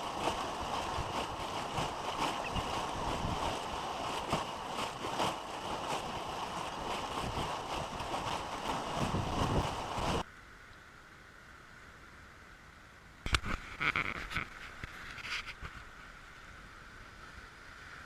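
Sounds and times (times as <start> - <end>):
wind buffeting microphone: 0.0 - 10.2
steady rushing outdoor noise: 0.0 - 10.3.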